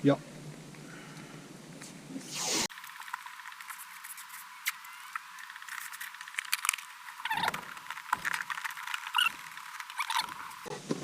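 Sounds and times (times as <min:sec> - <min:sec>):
masking tape peeling and tearing: 0:02.2 - 0:10.7.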